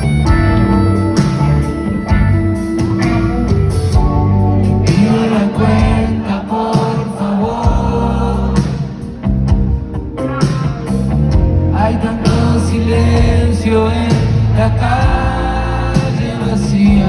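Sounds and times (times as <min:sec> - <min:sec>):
live pop-rock band: 0:00.0 - 0:17.0
people singing: 0:04.7 - 0:09.4, 0:11.7 - 0:17.0.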